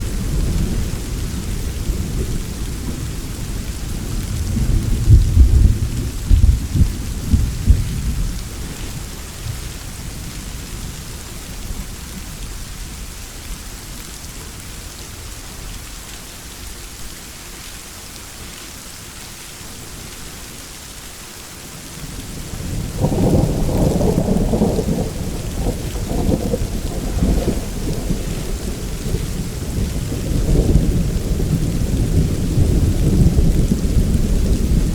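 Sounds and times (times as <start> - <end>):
rolling thunder: 0.0 - 10.2, 22.3 - 34.9
steady rain: 0.0 - 34.9.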